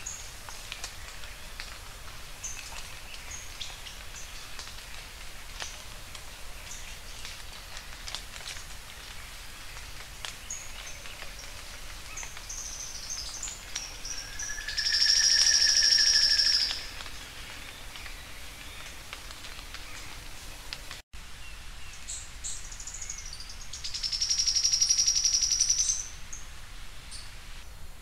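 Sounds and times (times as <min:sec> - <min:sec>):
steady background hiss: 0:00.0 - 0:28.0
bird singing high trill: 0:14.0 - 0:16.9.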